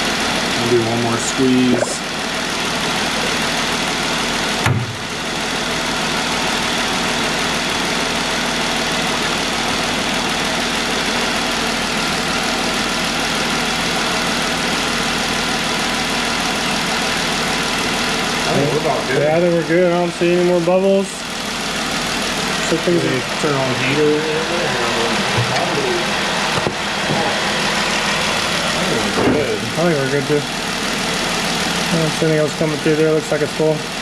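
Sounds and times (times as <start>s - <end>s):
car engine idling: 0.0s - 34.0s
short thump: 4.6s - 5.0s.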